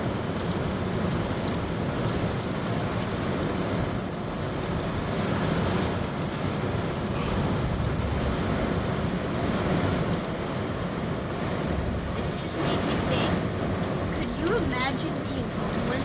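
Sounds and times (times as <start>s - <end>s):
rain and wind on vehicle roof: 0.0s - 16.0s.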